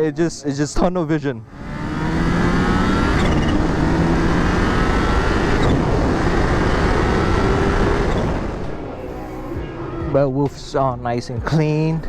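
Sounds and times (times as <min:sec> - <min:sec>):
motorcycle engine under way: 0:01.4 - 0:10.0.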